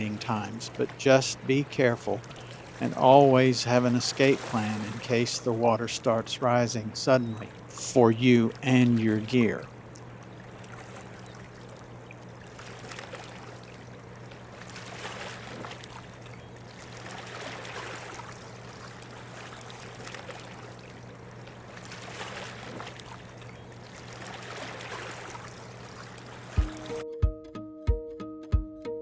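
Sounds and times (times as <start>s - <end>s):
steady low hum: 0.0s - 12.8s
water rushing: 0.0s - 27.0s.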